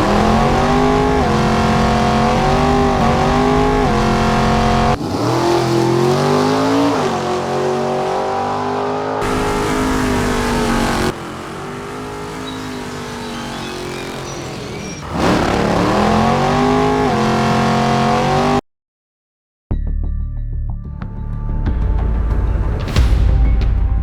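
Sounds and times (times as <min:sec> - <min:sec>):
rc truck motor revving: 0:09.2 - 0:17.3.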